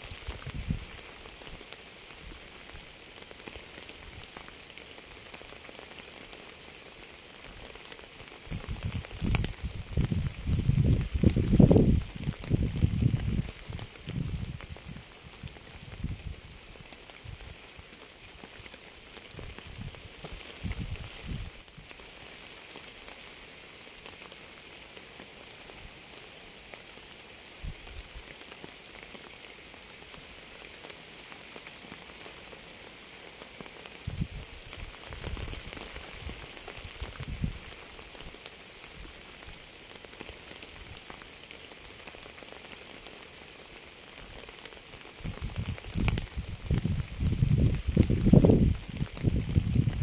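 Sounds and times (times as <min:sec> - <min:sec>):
rain falling: 0:00.0 - 0:50.0.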